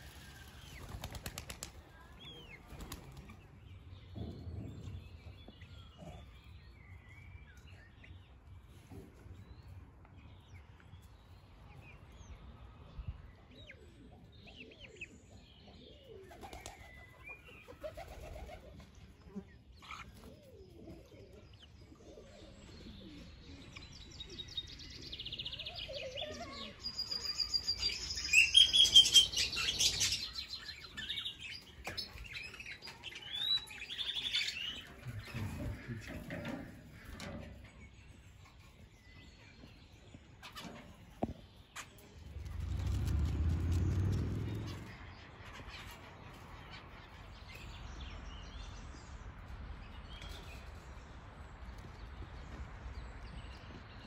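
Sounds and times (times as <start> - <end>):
songbirds chirping and trilling: 0.0 - 54.0
faint low bird calls: 15.7 - 47.9.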